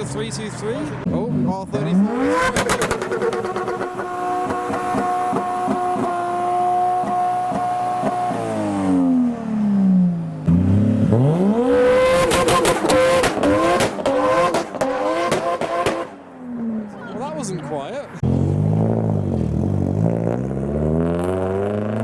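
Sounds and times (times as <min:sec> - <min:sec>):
car engine revving with crackles: 0:00.9 - 0:16.9, 0:18.2 - 0:22.0.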